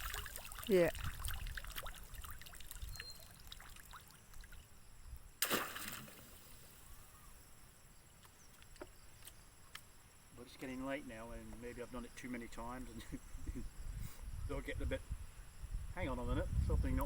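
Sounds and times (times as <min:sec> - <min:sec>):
water trickling and dripping: 0:00.0 - 0:04.8.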